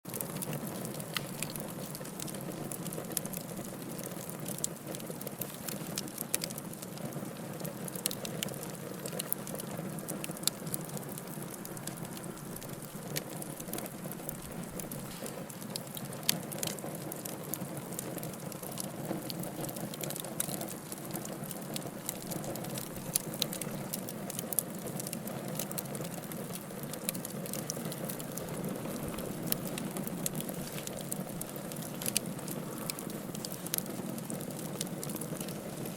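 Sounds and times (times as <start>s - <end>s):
wood fire crackling: 0.1s - 35.9s.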